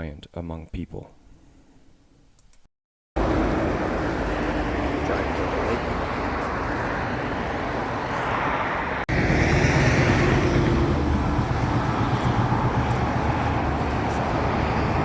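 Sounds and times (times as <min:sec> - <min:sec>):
motorcycle engine rumble: 0:03.2 - 0:15.0
wind and road noise: 0:03.2 - 0:15.0.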